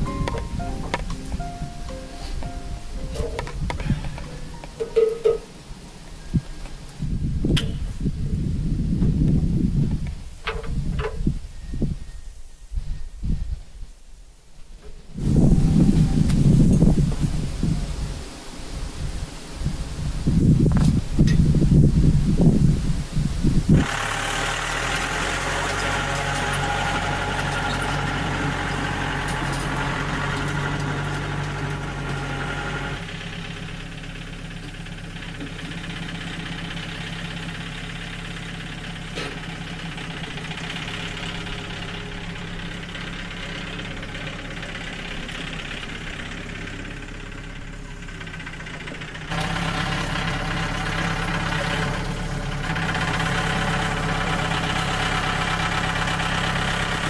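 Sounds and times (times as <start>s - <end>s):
sawmill engine idling: 0.0s - 7.2s, 23.8s - 57.0s.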